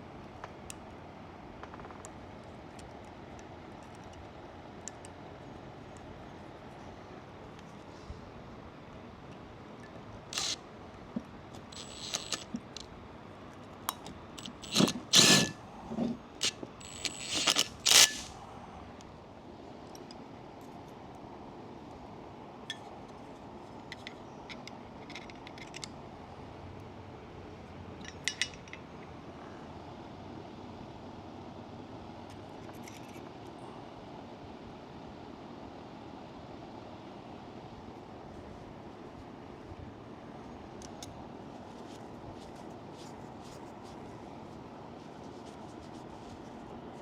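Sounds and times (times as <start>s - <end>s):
small metal parts clinking: 11.8s - 12.5s, 14.4s - 15.6s, 16.8s - 18.3s.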